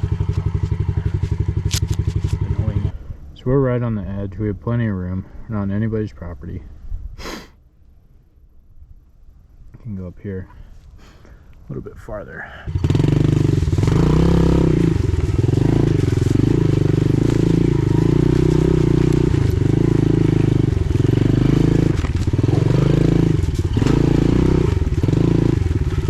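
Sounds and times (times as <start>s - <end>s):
pit bike engine revving: 0.0s - 3.0s, 12.7s - 26.0s.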